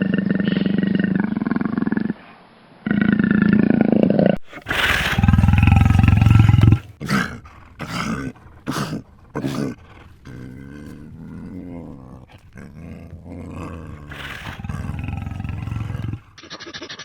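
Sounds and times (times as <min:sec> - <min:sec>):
large animal calling: 0:04.4 - 0:16.4.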